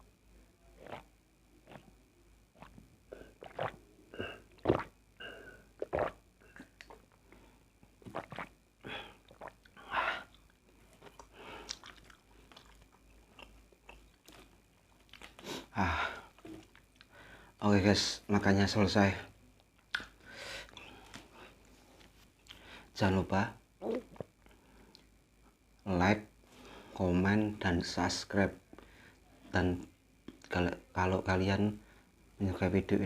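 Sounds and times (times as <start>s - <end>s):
person chewing food: 3.3s - 3.8s, 8.0s - 8.5s, 9.2s - 17.1s.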